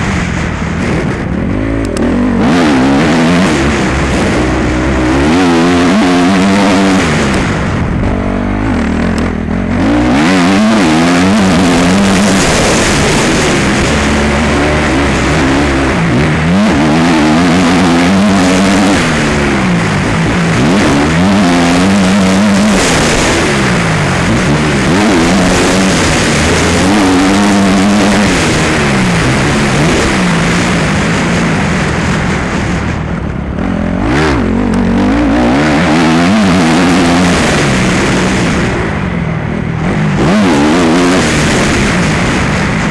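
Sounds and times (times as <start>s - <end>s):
motocross bike engine revving: 0.0s - 42.9s.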